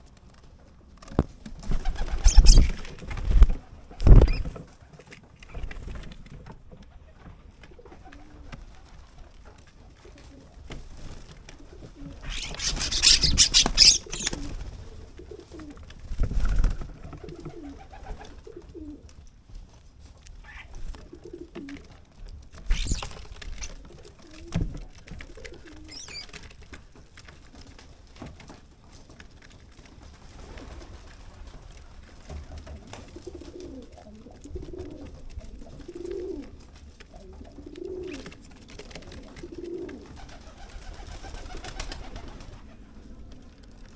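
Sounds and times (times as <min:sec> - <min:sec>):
wings rustling flurry: 0:01.0 - 0:04.7, 0:10.7 - 0:18.4, 0:22.5 - 0:28.2, 0:29.7 - 0:43.9
pigeon cooing: 0:01.7 - 0:04.5, 0:12.0 - 0:14.6, 0:22.6 - 0:24.6, 0:25.3 - 0:26.4, 0:33.2 - 0:36.6.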